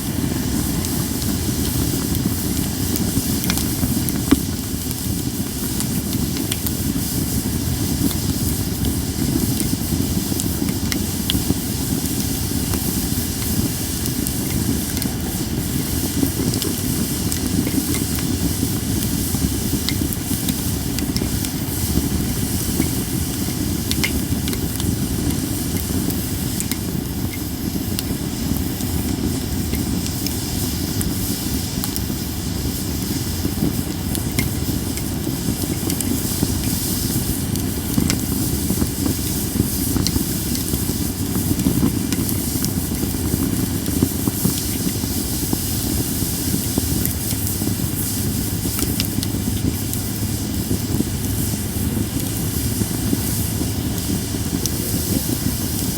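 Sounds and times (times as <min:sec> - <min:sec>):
campfire hissing: 0:00.0 - 0:55.9
wood crackling pops: 0:00.4 - 0:06.8, 0:08.0 - 0:30.4, 0:33.0 - 0:45.8.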